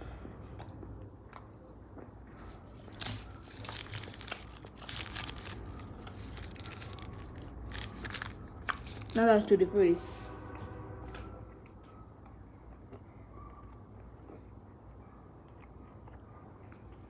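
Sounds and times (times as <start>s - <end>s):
gum wrapper crinkling: 2.8s - 9.5s.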